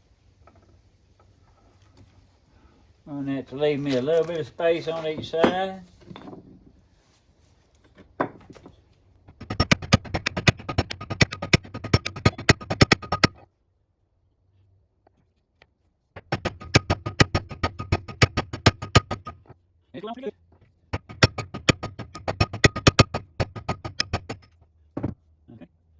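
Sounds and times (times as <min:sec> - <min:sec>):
metal-on-metal tapping: 0:09.4 - 0:13.4, 0:16.2 - 0:19.5, 0:21.0 - 0:25.1.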